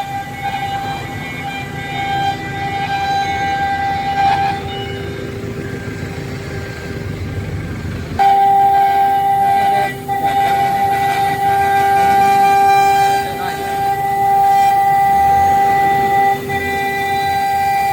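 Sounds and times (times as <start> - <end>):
router spindle high-pitched whine: 8.1 - 17.9.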